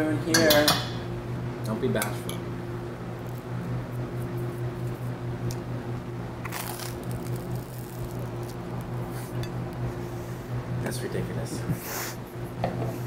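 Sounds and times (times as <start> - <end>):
steady low hum: 0.0 - 13.0
person chewing crunchy toast: 6.4 - 9.8.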